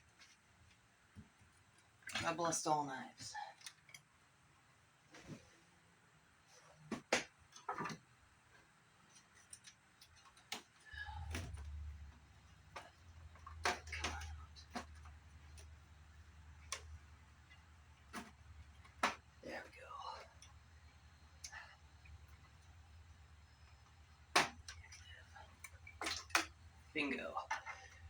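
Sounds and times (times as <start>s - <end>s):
clicks and knocks of parts handled: 6.9s - 19.4s.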